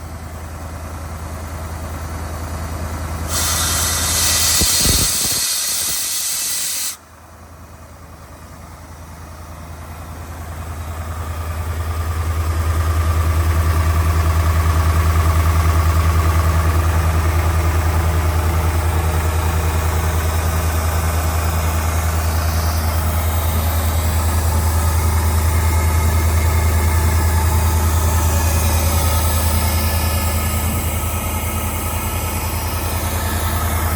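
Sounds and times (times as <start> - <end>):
diesel compressor engine running: 0.0 - 33.9
compressed air hissing: 3.3 - 7.0.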